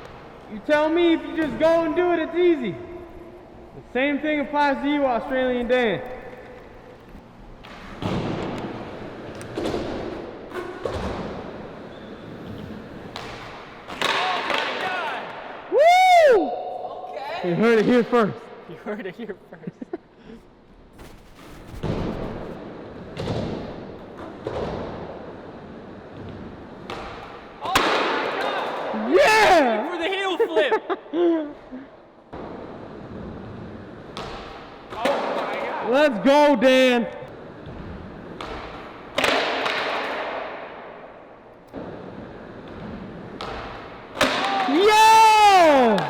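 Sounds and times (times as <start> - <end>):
skateboard wheels rolling: 6.0 - 14.9, 32.3 - 35.6, 41.5 - 45.8
skateboard landing slap: 13.0 - 14.9, 26.8 - 28.8, 38.3 - 40.7, 42.6 - 44.9
skateboard wheels rolling rumble: 41.7 - 43.5.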